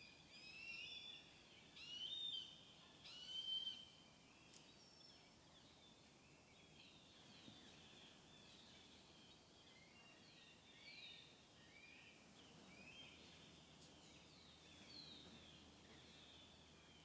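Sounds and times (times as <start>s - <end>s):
small birds chirping: 12.4s - 17.0s.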